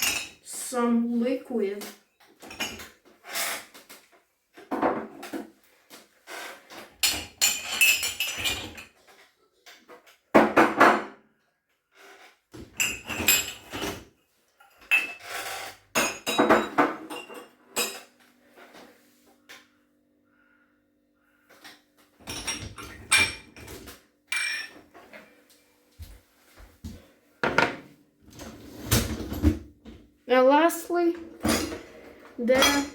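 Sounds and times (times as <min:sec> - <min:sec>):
dishes clinking and clattering: 0:00.0 - 0:00.5, 0:02.3 - 0:03.0, 0:06.8 - 0:09.1, 0:12.6 - 0:18.2, 0:21.6 - 0:25.3, 0:27.4 - 0:29.6, 0:31.2 - 0:32.9.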